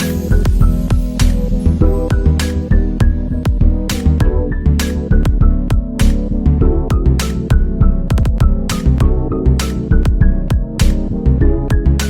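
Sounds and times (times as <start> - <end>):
steady drum beat: 6.9 - 9.0.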